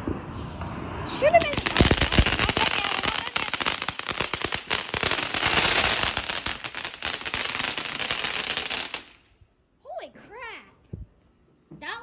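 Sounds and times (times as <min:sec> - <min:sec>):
firework crackling: 0:00.0 - 0:09.3
firework hiss: 0:00.0 - 0:09.3.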